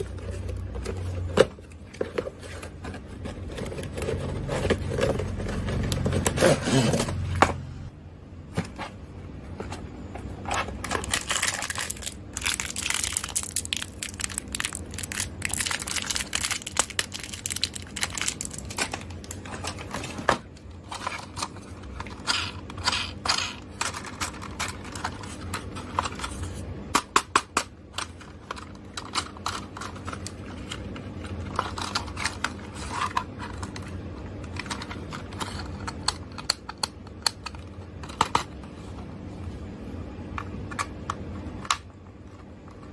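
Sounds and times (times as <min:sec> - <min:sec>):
rustling and crinkling packaging: 0:00.0 - 0:07.3, 0:08.6 - 0:26.7, 0:28.0 - 0:36.4.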